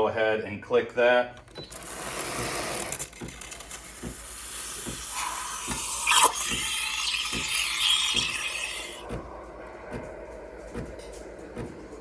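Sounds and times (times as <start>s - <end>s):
steam wand hissing and gurgling: 3.7s - 9.1s.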